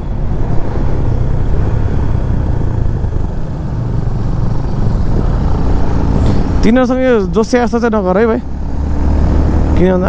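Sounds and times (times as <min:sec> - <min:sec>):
wind noise: 0:00.0 - 0:07.6
motorcycle engine running: 0:00.1 - 0:10.0.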